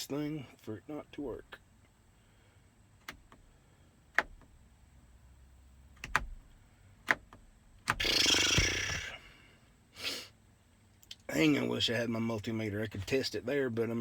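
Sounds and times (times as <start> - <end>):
person exhaling loudly: 8.0 - 10.3.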